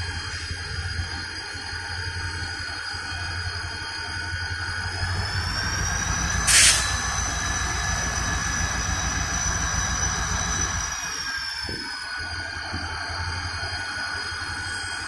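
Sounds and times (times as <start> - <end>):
low train rumble: 0.0 - 15.0
train wheels squealing: 0.0 - 15.0
short loud hiss: 6.4 - 7.0.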